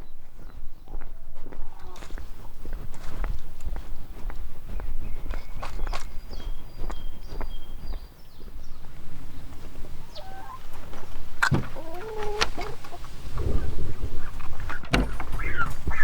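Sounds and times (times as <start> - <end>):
poultry peeping: 0.0 - 16.0
poultry squawking: 10.0 - 16.0.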